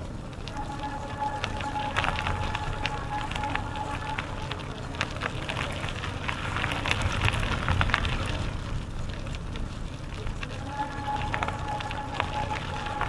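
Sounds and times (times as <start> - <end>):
bicycle tyres crunching on trail: 0.0 - 13.0
low rumble: 0.0 - 13.0
thin high tone: 0.4 - 5.2.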